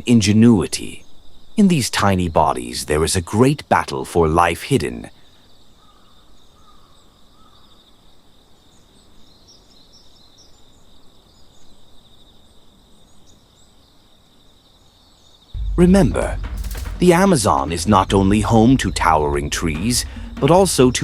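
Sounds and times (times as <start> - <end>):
faint bird chirps: 5.1 - 15.5.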